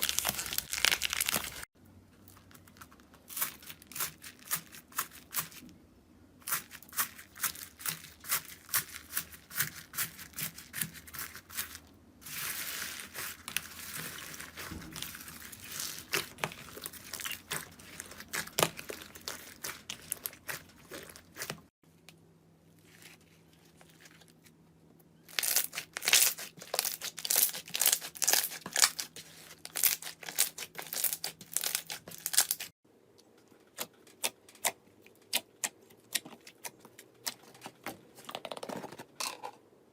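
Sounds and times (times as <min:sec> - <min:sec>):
slime crackling and popping: 0:00.0 - 0:01.7, 0:25.4 - 0:29.1.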